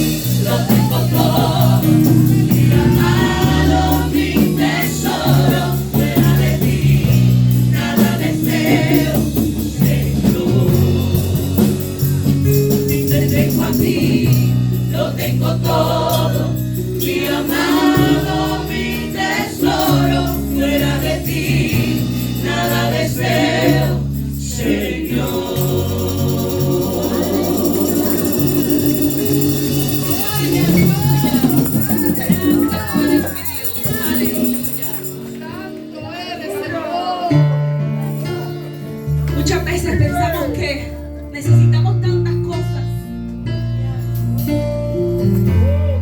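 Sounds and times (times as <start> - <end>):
group of voices singing: 0.0 - 35.2
band with held bass notes: 0.0 - 46.0.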